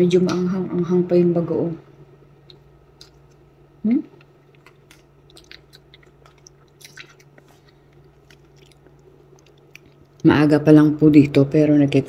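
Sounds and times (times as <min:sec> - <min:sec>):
chewing crisp fruit: 0:02.4 - 0:10.5.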